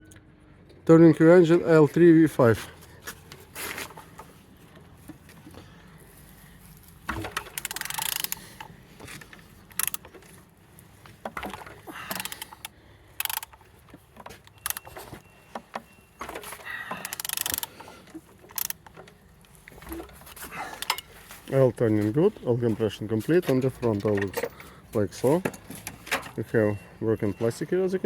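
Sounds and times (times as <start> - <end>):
engine clicking and rasping: 2.3 - 28.0.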